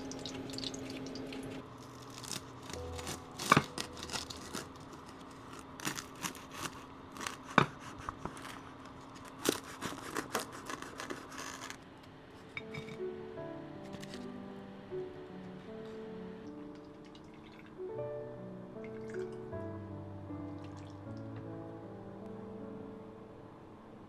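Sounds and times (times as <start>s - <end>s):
faint steady hum: 0.0s - 24.0s
scraping rustles: 1.8s - 11.8s.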